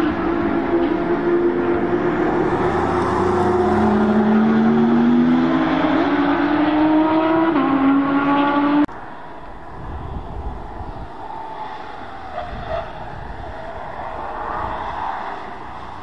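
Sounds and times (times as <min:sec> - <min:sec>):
car engine accelerating: 0:00.0 - 0:08.9
rush of wind: 0:00.0 - 0:16.0.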